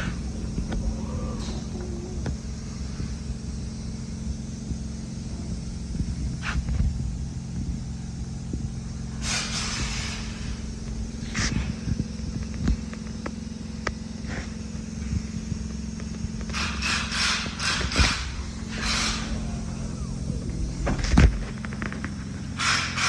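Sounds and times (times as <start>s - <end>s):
car engine idling: 0.0s - 23.0s
short hissing bursts: 6.4s - 6.8s, 8.8s - 21.2s, 22.2s - 23.0s.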